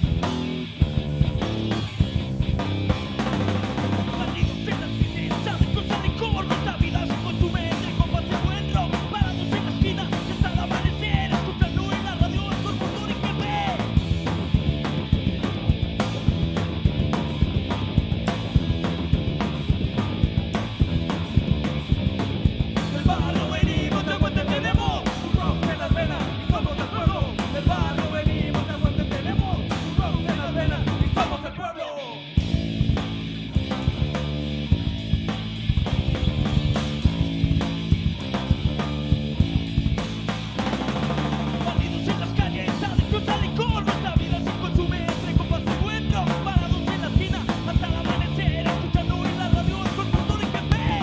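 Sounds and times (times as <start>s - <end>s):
drum kit beat: 0.0s - 31.4s, 32.4s - 51.0s
bass guitar: 0.0s - 51.0s
distorted electric guitars: 0.0s - 51.0s
punk rock band playing: 0.0s - 51.0s
person singing: 22.9s - 32.3s, 41.5s - 51.0s.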